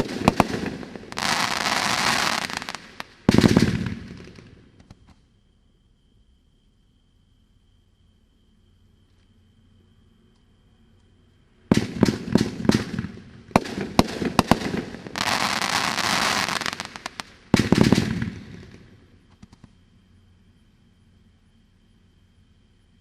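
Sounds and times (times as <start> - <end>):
firework bangs: 0.0 - 5.0, 11.7 - 19.7
firework crackling hiss: 0.0 - 5.2, 11.7 - 19.7.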